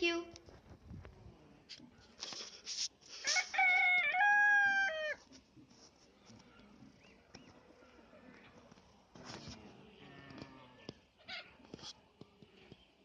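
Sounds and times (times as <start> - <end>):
rooster crowing: 3.2 - 5.2.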